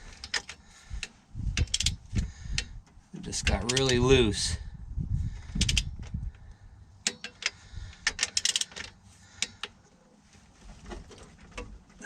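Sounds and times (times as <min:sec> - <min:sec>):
ratchet wrench clicking: 0:00.2 - 0:02.7, 0:03.4 - 0:04.0, 0:05.5 - 0:06.0, 0:07.0 - 0:09.6.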